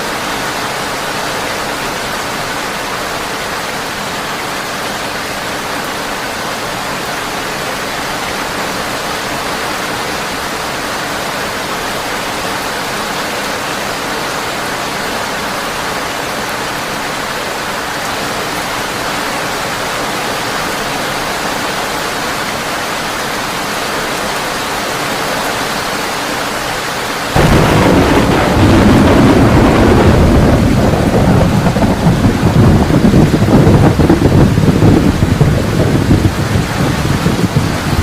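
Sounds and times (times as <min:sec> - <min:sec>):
heavy rain on a tin roof: 0:00.0 - 0:38.0
deep rumble of thunder: 0:27.4 - 0:38.0.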